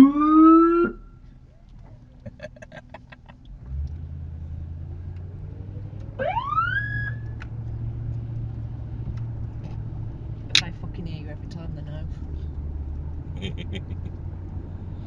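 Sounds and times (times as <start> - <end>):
police siren whoop: 0.0 - 1.0, 6.2 - 7.3
car engine rumbling: 0.0 - 15.0.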